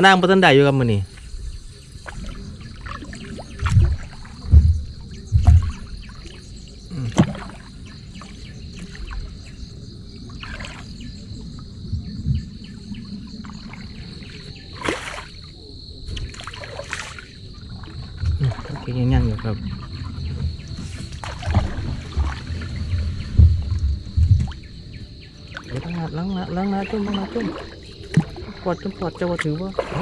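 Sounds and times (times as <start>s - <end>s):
insect chorus: 0.0s - 30.0s
rustling or splashing rushes: 1.0s - 9.6s, 11.9s - 24.9s
low thumps: 1.3s - 7.6s, 17.7s - 26.1s.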